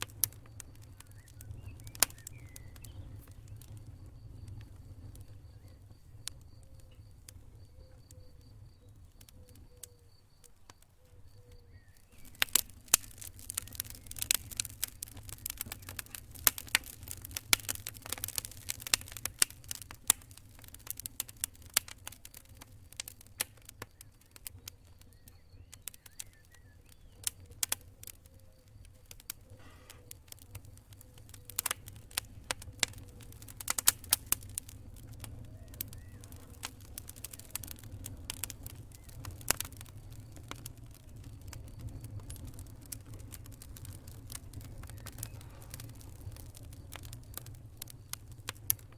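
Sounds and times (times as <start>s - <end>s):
campfire crackling: 0.0s - 48.9s.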